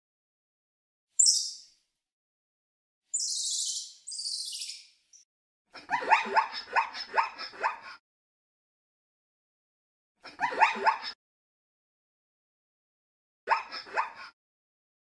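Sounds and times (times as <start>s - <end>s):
monkey squeaking and chirping: 1.2s - 1.6s, 3.1s - 4.9s.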